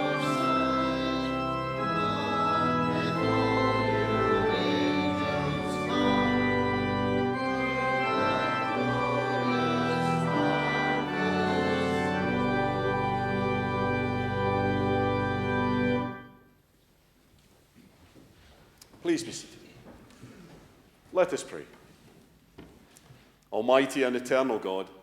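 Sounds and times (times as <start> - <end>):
church organ chords: 0.0 - 16.5.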